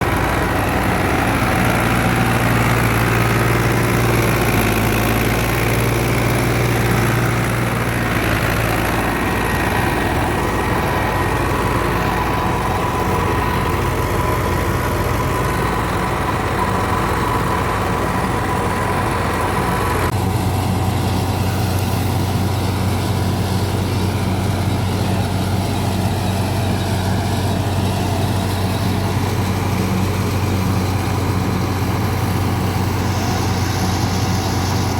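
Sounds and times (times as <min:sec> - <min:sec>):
thresher machinery humming: 0:00.0 - 0:34.9
tractor diesel engine under load: 0:00.0 - 0:34.9.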